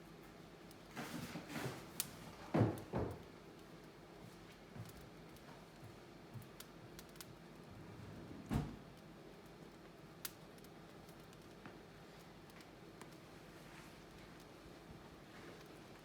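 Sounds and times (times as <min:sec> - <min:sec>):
wood fire crackling: 0:00.0 - 0:08.0, 0:08.6 - 0:16.0
sharp snap of fire: 0:10.2 - 0:11.5.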